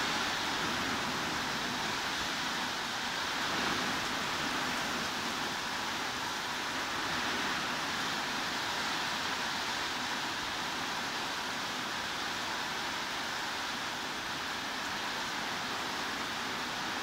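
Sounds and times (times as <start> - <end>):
heavy rain hiss: 0.0 - 17.0.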